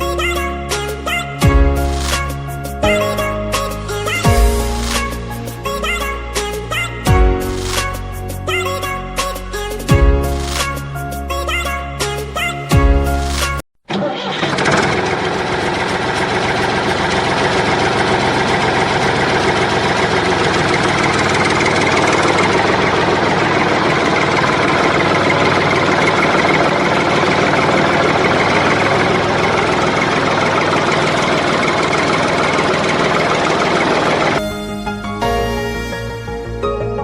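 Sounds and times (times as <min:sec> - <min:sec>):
engine idling: 0:14.0 - 0:35.8.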